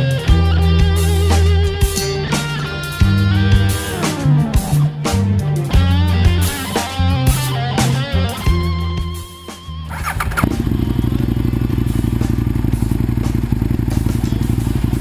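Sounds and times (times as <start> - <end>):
rock music with guitar: 0.0 - 15.0
motorcycle engine starting and idling: 9.9 - 15.0.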